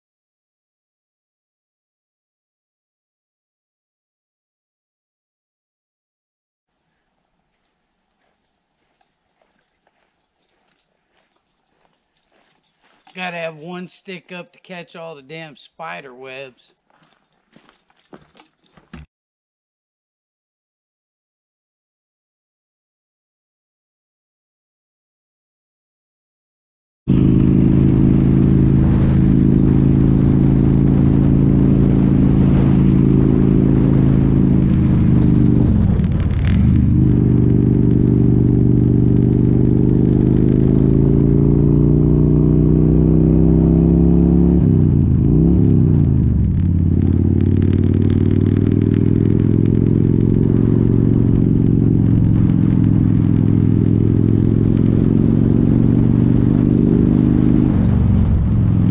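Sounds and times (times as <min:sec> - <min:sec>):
motorcycle engine accelerating: 0:08.2 - 0:13.8, 0:27.1 - 0:58.9.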